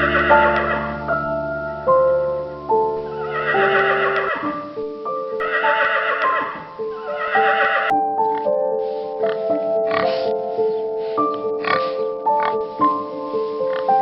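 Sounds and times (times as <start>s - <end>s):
background music: 0.0s - 14.0s
horse whinnying: 3.2s - 4.5s, 5.4s - 7.9s.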